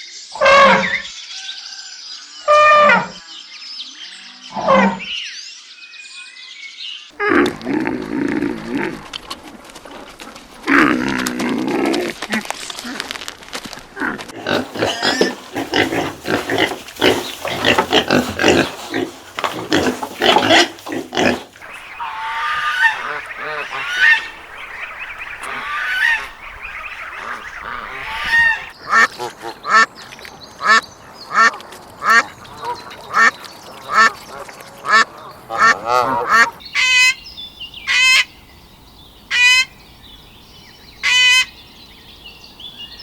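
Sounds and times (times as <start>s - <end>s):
geese honking: 14.3s - 29.9s, 30.6s - 37.2s, 37.8s - 38.4s, 39.2s - 39.8s, 41.0s - 41.6s.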